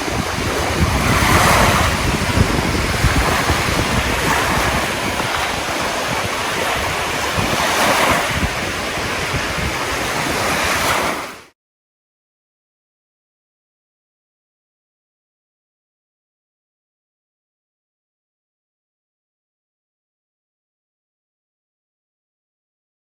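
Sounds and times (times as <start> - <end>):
rushing water: 0.0 - 11.5
wind buffeting microphone: 0.0 - 11.5.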